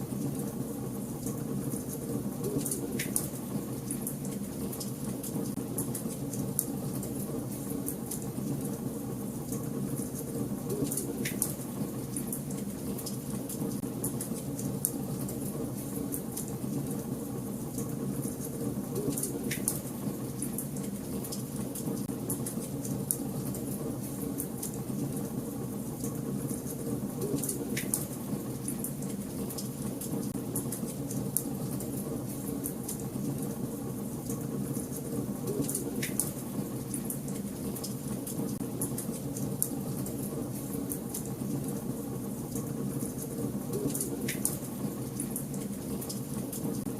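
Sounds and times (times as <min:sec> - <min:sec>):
fire crackling and popping: 0:42.6 - 0:46.8.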